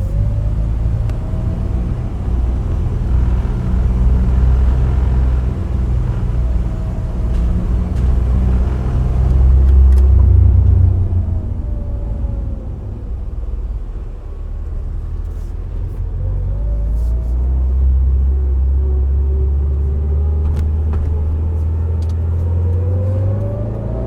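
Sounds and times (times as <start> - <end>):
car engine rumble: 0.0 - 24.0
road noise: 0.0 - 24.0.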